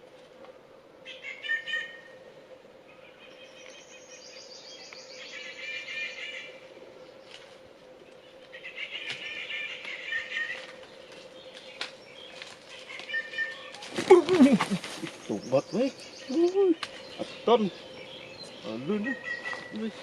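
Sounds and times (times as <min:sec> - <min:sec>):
birds chirping: 0:01.0 - 0:20.0.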